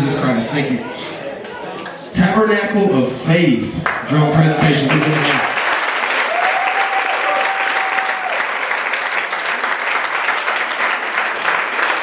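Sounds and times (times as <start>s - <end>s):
audience applauding: 3.8s - 12.0s
high cheer or whistle: 6.2s - 8.6s.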